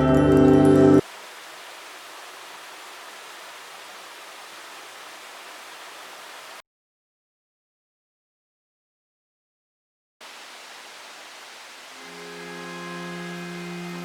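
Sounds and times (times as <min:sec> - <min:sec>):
ambient music with bell-like tones: 0:00.0 - 0:01.0, 0:12.0 - 0:14.0.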